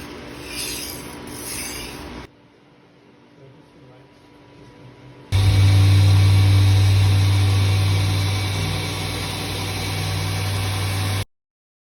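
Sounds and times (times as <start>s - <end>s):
machine humming: 5.3s - 11.3s.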